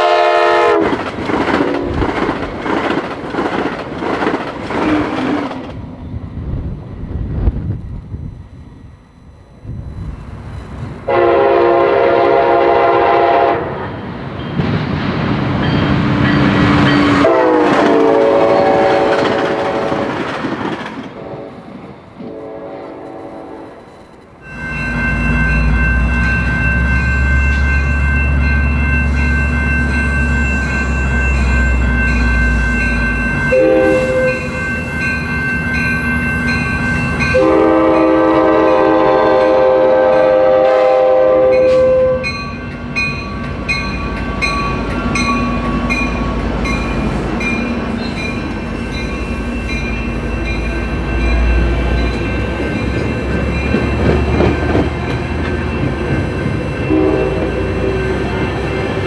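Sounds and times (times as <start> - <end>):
train horn: 0.0 - 1.0, 11.1 - 13.9, 17.2 - 20.2, 21.2 - 21.6, 22.2 - 23.8, 33.5 - 34.7, 37.3 - 42.4, 56.8 - 58.6
locomotive rumbling: 0.0 - 59.0.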